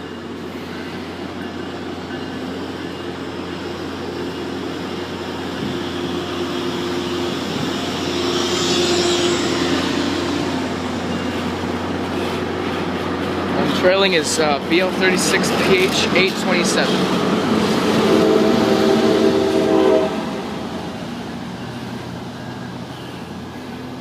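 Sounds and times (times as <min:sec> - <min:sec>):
diesel locomotive engine under load: 0:00.0 - 0:24.0
train rolling noise: 0:00.0 - 0:24.0.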